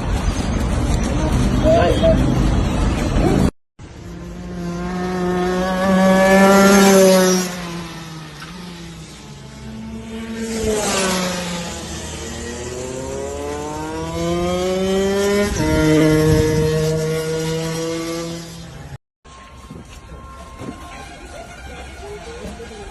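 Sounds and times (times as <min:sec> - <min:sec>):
racing engine revving and passing: 0:00.7 - 0:19.0.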